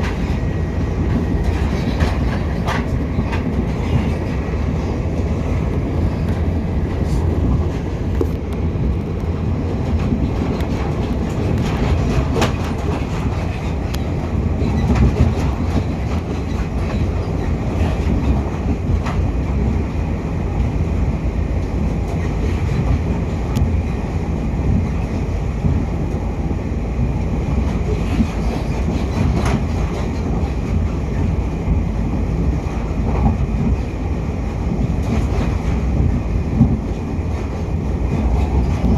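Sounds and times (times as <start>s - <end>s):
clicks over rail joints: 0.0s - 4.6s, 6.1s - 19.7s
train wheels rumbling on rail: 0.0s - 38.9s.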